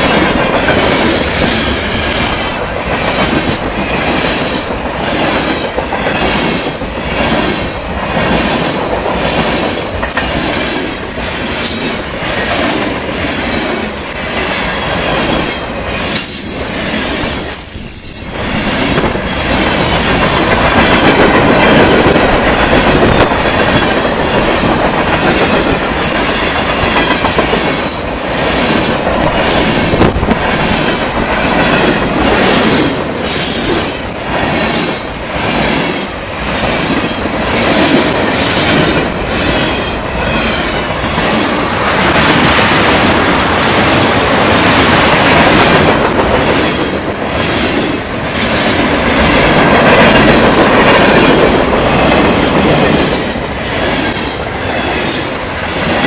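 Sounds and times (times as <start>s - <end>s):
freight train wheels clacking: 0.0s - 56.0s
train wheel squeals: 10.2s - 12.7s, 13.3s - 20.0s, 31.5s - 34.0s.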